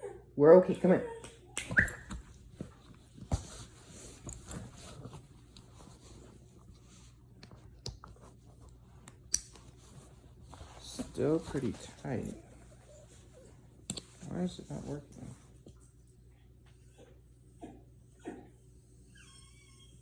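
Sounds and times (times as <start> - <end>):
fabric rustling and handling: 1.7 - 15.7.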